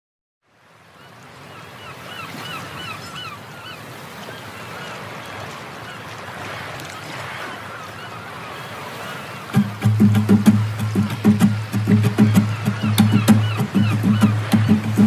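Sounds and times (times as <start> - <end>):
bird calling in short notes: 9.5 - 15.0.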